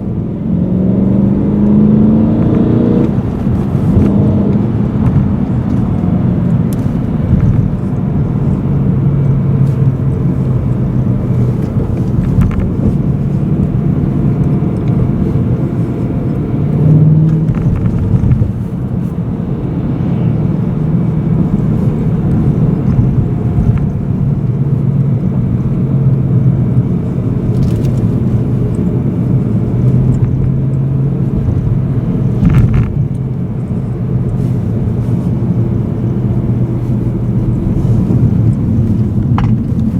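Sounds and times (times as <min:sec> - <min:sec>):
car engine drone from inside cabin: 0:00.0 - 0:39.9.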